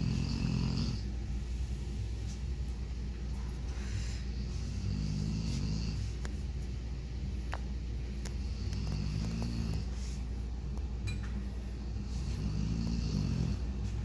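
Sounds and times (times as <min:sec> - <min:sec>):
dog snoring: 0:00.0 - 0:01.1, 0:04.3 - 0:06.1, 0:08.3 - 0:10.0, 0:11.9 - 0:13.9
steady low rumble: 0:00.0 - 0:14.0.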